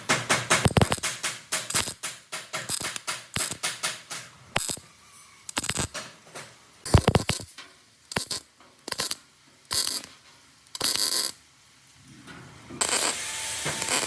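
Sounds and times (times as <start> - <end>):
loud knock: 0.0 - 4.2
sharp mechanical clicks: 0.1 - 4.8, 6.8 - 10.1.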